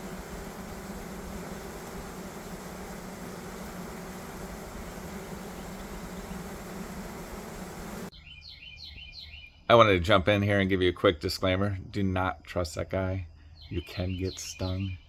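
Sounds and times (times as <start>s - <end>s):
honeybees swarming hum: 0.0s - 8.1s
faint bird chirps: 4.6s - 6.7s, 7.5s - 10.6s, 11.5s - 15.0s.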